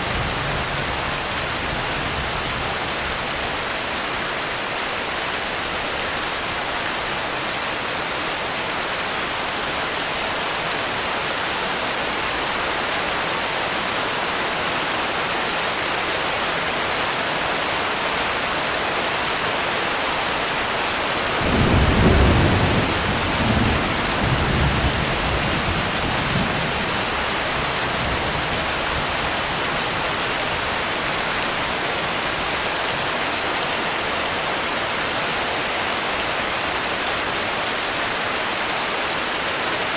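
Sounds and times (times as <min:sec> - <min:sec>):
heavy rain falling: 0:00.0 - 0:39.9
thunder rumbling: 0:21.4 - 0:30.1.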